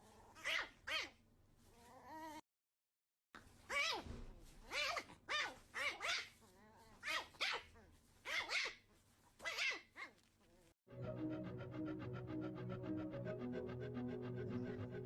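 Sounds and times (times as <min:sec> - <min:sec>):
small pet's high calls: 0:09.4 - 0:10.1
music: 0:10.9 - 0:15.0.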